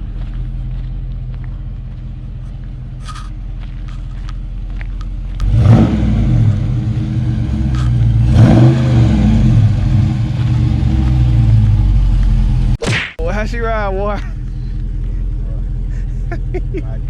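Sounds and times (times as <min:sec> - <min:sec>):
car engine revving: 0:02.9 - 0:12.8.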